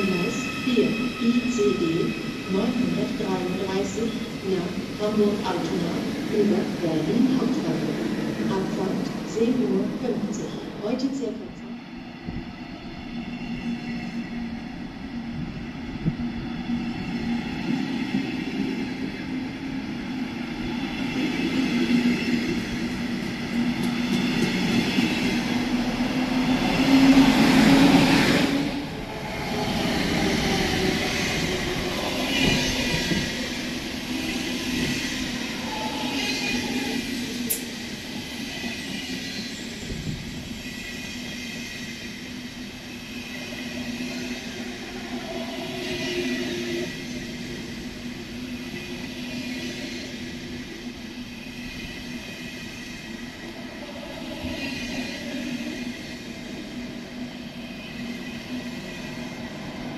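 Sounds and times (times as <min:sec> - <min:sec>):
train wheels rumbling on rails: 0:13.5 - 0:59.9.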